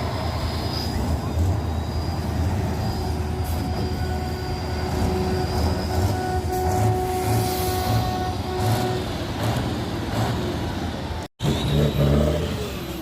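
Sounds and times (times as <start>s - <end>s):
high steady squeal: 0.0s - 9.4s.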